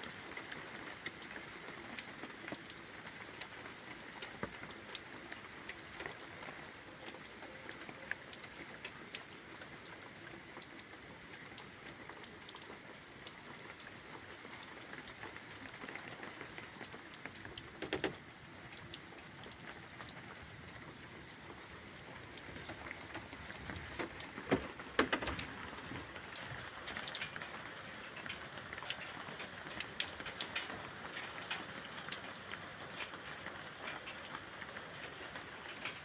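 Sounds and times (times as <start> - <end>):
rain pattering: 0.0 - 36.0
raindrops ticking on surfaces: 0.0 - 36.0.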